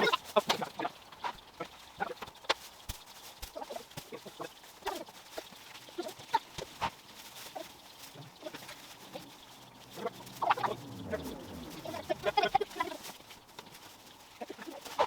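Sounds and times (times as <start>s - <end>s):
farm animals calling: 8.1s - 12.9s.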